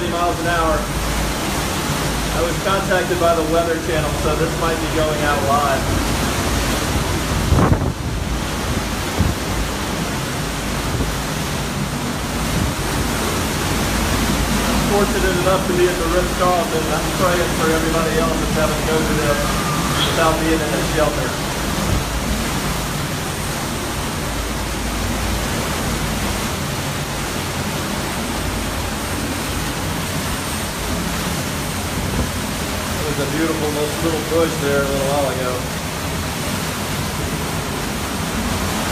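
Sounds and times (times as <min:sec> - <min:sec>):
strong wind rushing: 0:04.0 - 0:34.5.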